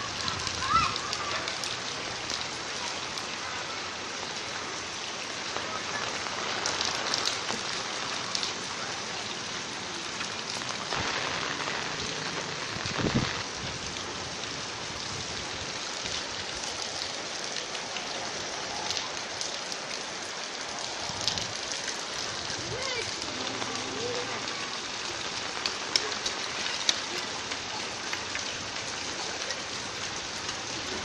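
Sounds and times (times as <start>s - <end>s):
steady rain hiss and patter: 0.0s - 31.0s.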